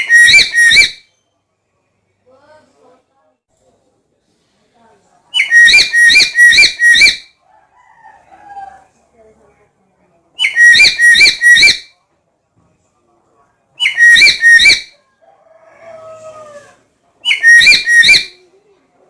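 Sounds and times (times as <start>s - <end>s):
parrot shrill calls: 0.0s - 1.1s, 5.4s - 7.3s, 10.4s - 11.9s, 13.8s - 15.0s, 17.3s - 18.4s.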